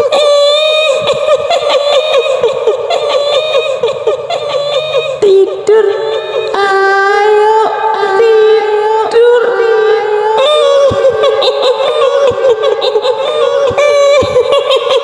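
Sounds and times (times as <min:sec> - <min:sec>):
woman singing long held notes: 0:04.8 - 0:14.7.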